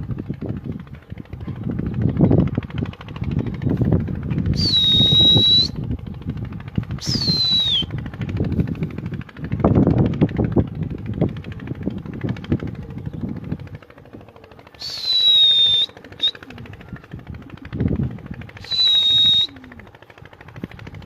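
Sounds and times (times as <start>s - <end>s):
rumbling fluttering microphone noise: 0.0s - 21.0s
short high whistles: 4.5s - 5.8s, 7.0s - 7.9s, 14.8s - 16.4s, 18.6s - 19.7s.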